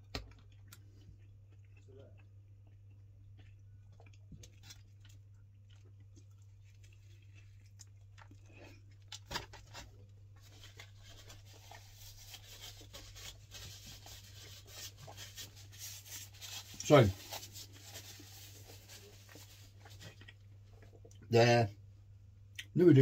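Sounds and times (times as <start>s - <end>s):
person chewing: 0.0s - 21.3s.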